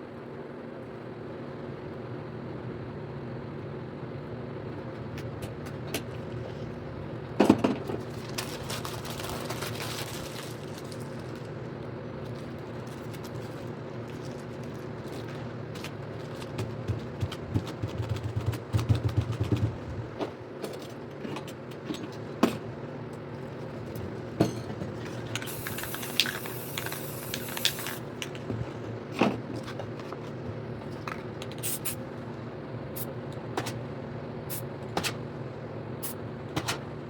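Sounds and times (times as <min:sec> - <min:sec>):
steady low hum: 0:00.0 - 0:37.0
spray paint can hissing: 0:25.4 - 0:28.0, 0:31.6 - 0:32.0.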